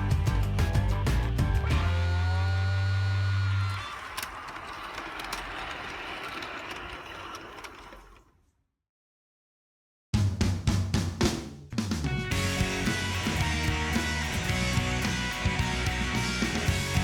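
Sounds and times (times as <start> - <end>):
music with bass and drums: 0.0 - 2.5, 10.2 - 17.0.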